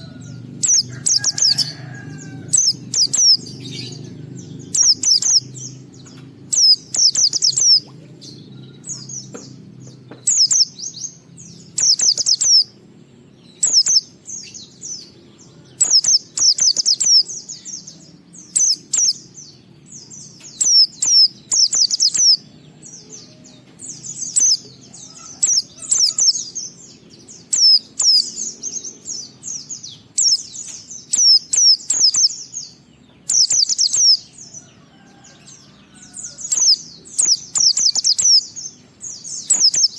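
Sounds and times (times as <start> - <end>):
bird twittering rapid high notes: 4.7 - 5.7.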